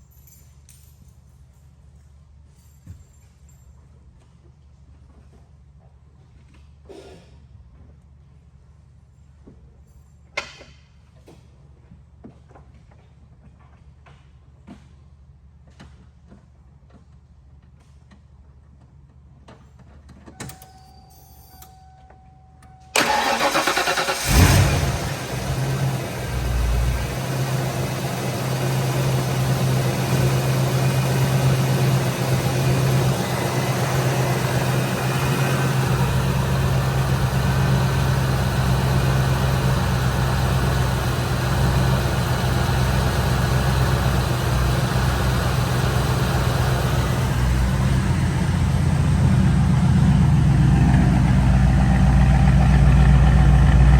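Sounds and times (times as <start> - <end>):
starter motor cranking: 23.0 - 50.4
car engine firing and idling: 23.0 - 53.9.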